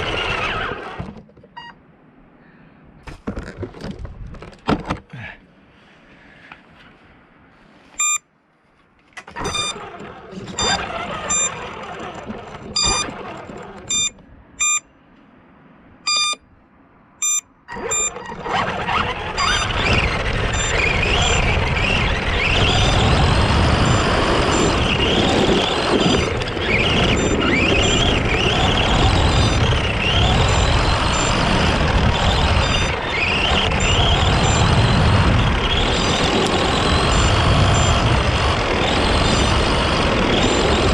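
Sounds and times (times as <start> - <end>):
tyre and ground noise: 0.0 - 1.9, 3.0 - 5.5, 6.5 - 16.6, 17.2 - 40.9
short electronic beeps: 8.0 - 8.3, 9.4 - 9.8, 10.6 - 11.6, 12.8 - 13.1, 13.9 - 14.9, 16.1 - 16.4, 17.2 - 18.4, 20.6 - 20.8, 23.8 - 24.8, 27.1 - 28.0, 30.4 - 31.5, 33.8 - 34.7
electric motor whining: 9.4 - 14.8, 17.2 - 40.9.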